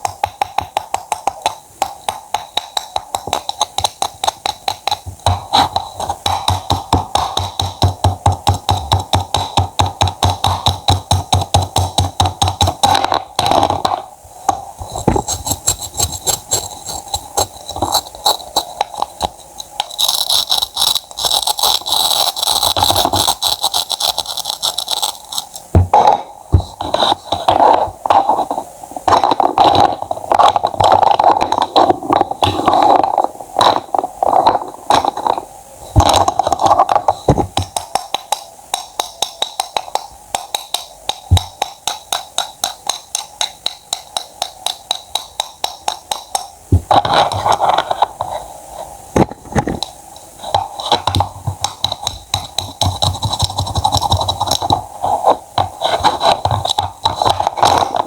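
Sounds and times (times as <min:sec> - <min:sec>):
knife chopping: 0:02.3 - 0:27.7.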